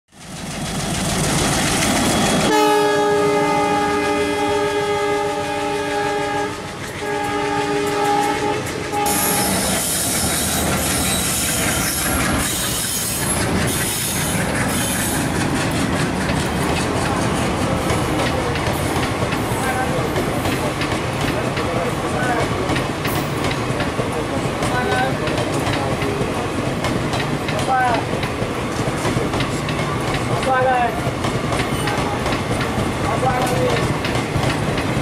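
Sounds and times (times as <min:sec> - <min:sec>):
train coaches rumbling past: 0:00.1 - 0:35.0
train horn blasts: 0:02.5 - 0:10.0.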